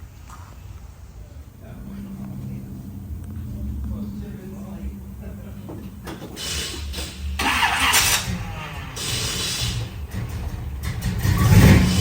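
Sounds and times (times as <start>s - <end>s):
car engine running: 1.6s - 12.0s
loud hissing bursts: 5.2s - 10.0s.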